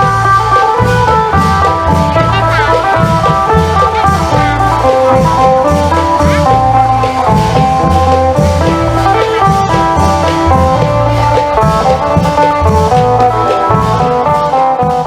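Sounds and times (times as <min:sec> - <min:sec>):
long drum beats: 0:00.0 - 0:15.0
low bass notes: 0:00.0 - 0:15.0
plucked lute melody: 0:00.0 - 0:15.0.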